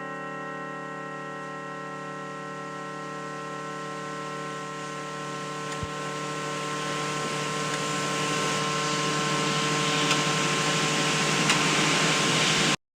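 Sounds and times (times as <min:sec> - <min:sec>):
synthetic bell hum chord: 0:00.0 - 0:09.9
hiss: 0:06.8 - 0:12.8.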